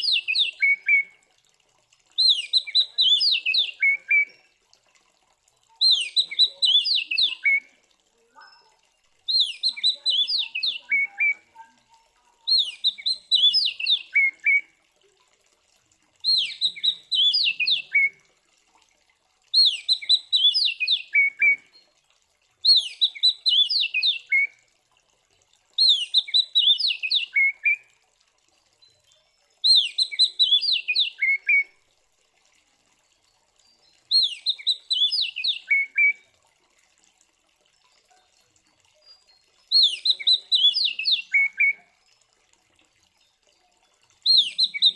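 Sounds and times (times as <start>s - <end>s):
bird singing: 2.2s - 4.4s, 5.8s - 7.6s, 9.3s - 11.6s, 12.5s - 14.6s, 16.2s - 18.1s, 25.8s - 27.8s, 28.8s - 31.7s, 34.1s - 36.2s, 39.1s - 41.8s, 44.2s - 44.9s.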